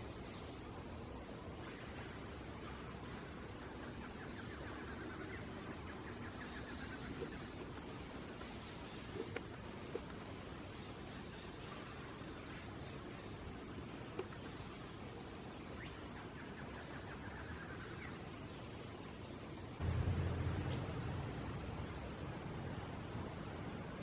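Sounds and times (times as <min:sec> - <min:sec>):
low rumble: 0:19.8 - 0:23.3.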